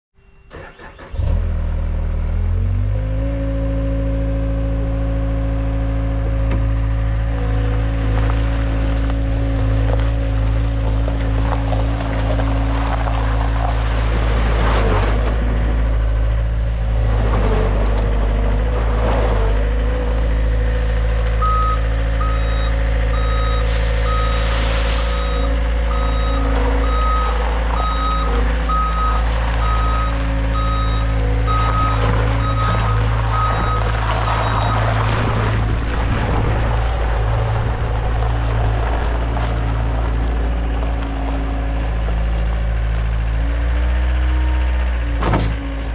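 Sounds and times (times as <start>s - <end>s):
skid steer engine running: 0.5s - 45.9s
backup alarm beeping: 21.4s - 24.5s, 25.1s - 34.9s.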